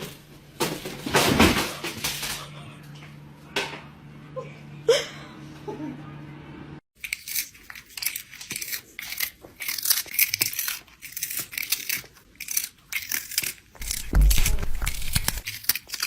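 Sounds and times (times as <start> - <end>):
crinkling and tearing: 7.0 - 16.0.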